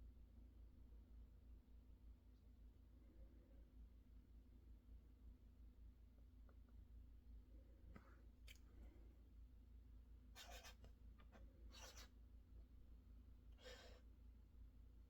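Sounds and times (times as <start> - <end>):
pen scratching on paper: 10.4 - 12.1, 13.6 - 14.0.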